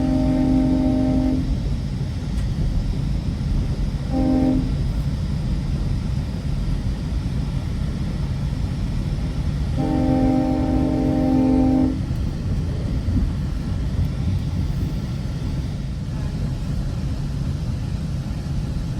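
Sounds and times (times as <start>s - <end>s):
train horn blasts: 0.0s - 1.7s, 4.0s - 5.0s, 9.7s - 12.2s
train wheels rumbling on rails: 0.0s - 18.9s.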